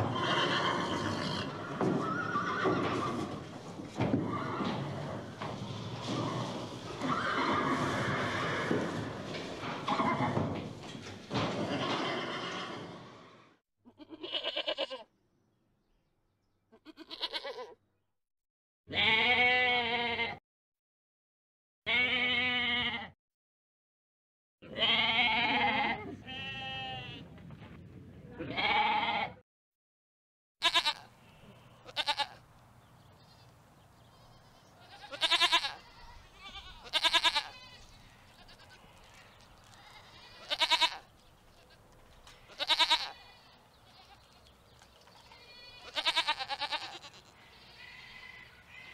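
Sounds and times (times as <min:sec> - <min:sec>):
goats and sheep bleating: 0:00.0 - 0:10.6, 0:13.9 - 0:15.1, 0:16.7 - 0:17.8, 0:18.9 - 0:20.4, 0:21.9 - 0:23.2, 0:24.6 - 0:27.2, 0:28.4 - 0:29.4, 0:30.6 - 0:32.4, 0:34.0 - 0:48.9.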